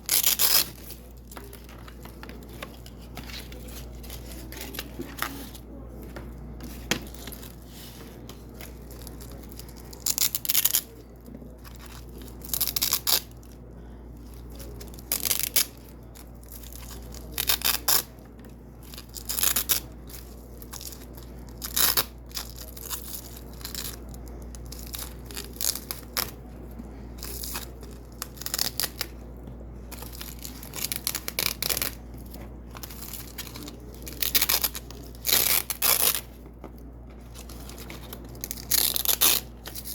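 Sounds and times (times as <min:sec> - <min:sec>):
velcro strips ripping: 0:00.0 - 0:00.9, 0:32.8 - 0:36.3, 0:37.6 - 0:39.9.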